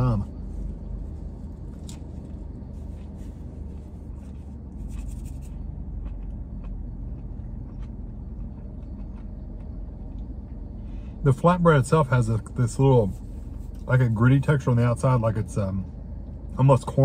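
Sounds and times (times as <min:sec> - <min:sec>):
low rumble inside car: 0:00.0 - 0:17.0
scratchy rustle: 0:01.7 - 0:05.6
person chewing with wet smacks: 0:01.7 - 0:10.7.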